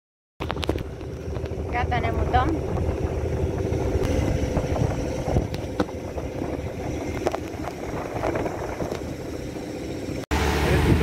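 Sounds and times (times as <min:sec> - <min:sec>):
boat engine low rumble: 0:00.4 - 0:11.0
wind buffeting microphone: 0:00.4 - 0:11.0.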